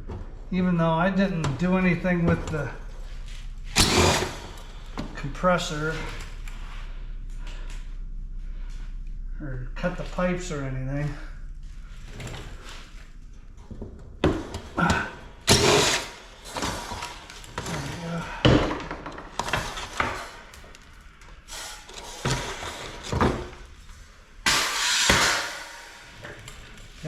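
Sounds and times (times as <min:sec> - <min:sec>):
metal rasp: 0:03.7 - 0:04.7, 0:14.8 - 0:18.1, 0:24.5 - 0:26.2
metal clanking and knocking: 0:11.7 - 0:27.0.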